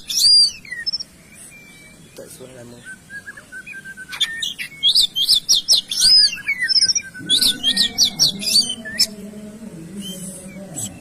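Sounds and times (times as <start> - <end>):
songbird chirping: 0.0 - 11.0
low steady drone: 7.0 - 11.0.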